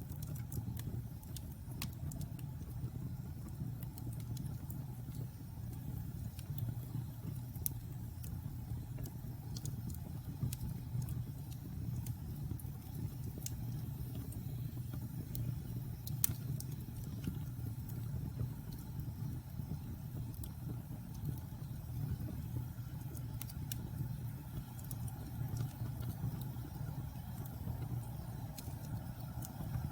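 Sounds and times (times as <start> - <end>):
fire pops and snaps: 0.0 - 29.9
logs crackling in fireplace: 0.0 - 29.9
low fire rumble: 0.0 - 29.9.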